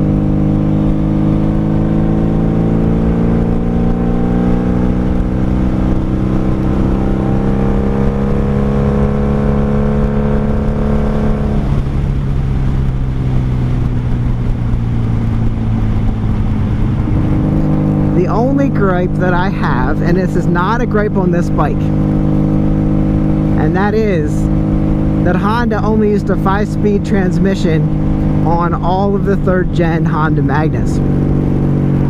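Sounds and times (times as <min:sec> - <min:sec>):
motorcycle engine accelerating: 0:00.0 - 0:32.0.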